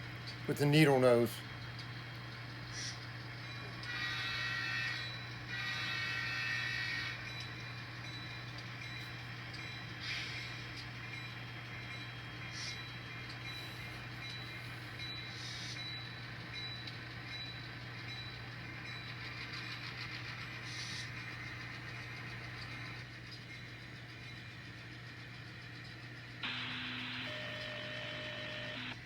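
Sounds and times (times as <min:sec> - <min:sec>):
model train motor hum: 0:00.0 - 0:29.0.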